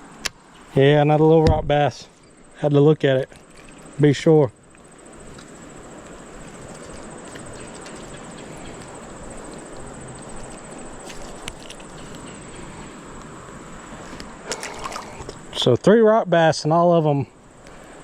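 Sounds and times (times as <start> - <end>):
insect trill: 0.0 - 18.0
creek water rushing: 4.9 - 15.6.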